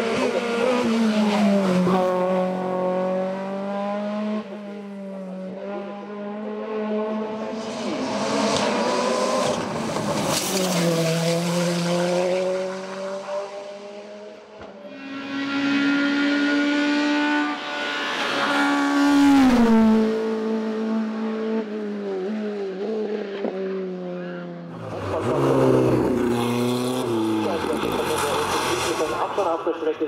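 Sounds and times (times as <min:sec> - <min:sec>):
racing car engines at full throttle: 0:00.0 - 0:30.0.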